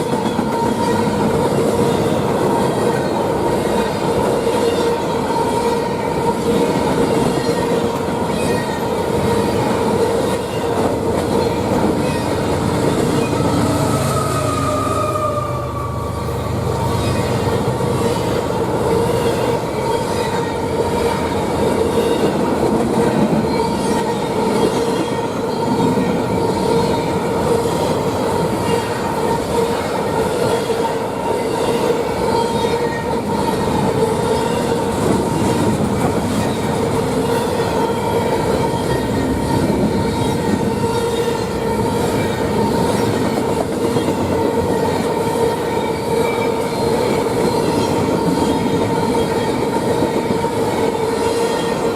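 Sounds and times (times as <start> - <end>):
high wheel squeal: 11.4 - 21.4.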